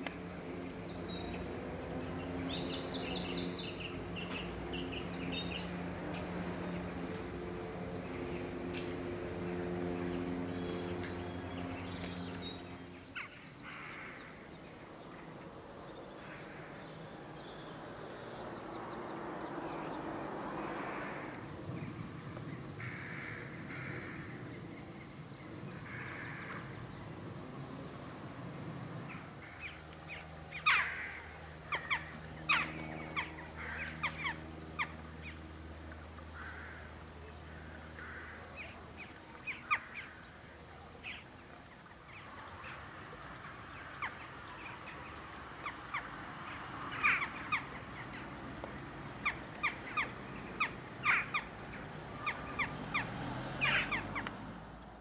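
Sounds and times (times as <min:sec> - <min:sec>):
birds chirping: 0:00.0 - 0:20.1
low steady hum: 0:00.0 - 0:55.0.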